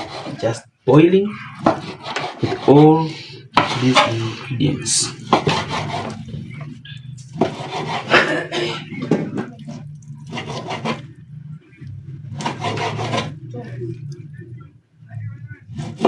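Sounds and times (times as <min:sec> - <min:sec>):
knife sawing through raw meat: 0:00.0 - 0:00.6, 0:01.6 - 0:04.4, 0:05.2 - 0:06.3, 0:07.4 - 0:08.9, 0:10.2 - 0:11.1, 0:12.4 - 0:13.4, 0:15.7 - 0:16.0
low steady hum: 0:00.0 - 0:16.0.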